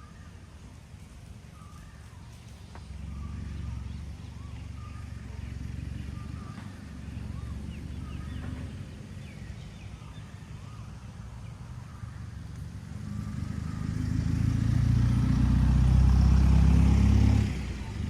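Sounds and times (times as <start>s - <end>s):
low steady rumble: 0.0s - 16.2s
small birds chirping: 0.0s - 18.0s.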